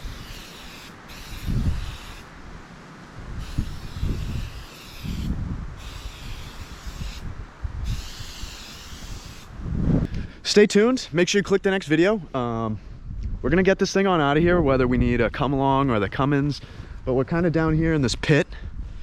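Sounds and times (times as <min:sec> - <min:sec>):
steady hiss: 0:00.0 - 0:09.6
wind buffeting microphone: 0:01.1 - 0:02.6, 0:03.2 - 0:10.4, 0:12.7 - 0:19.0.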